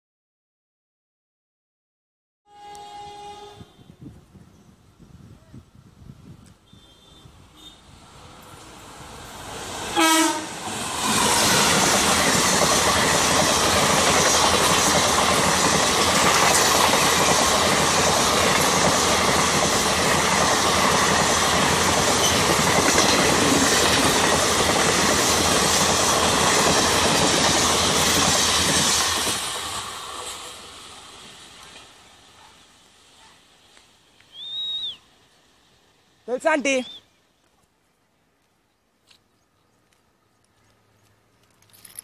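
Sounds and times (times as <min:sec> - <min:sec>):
train horn blast: 0:02.5 - 0:04.2, 0:06.6 - 0:08.0, 0:09.9 - 0:10.6
train wheels rattling on rails: 0:08.4 - 0:32.5.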